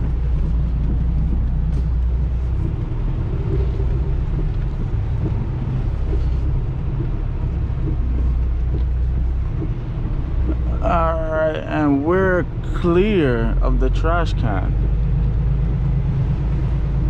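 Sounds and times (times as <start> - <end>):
truck diesel engine droning: 0.0 - 17.0.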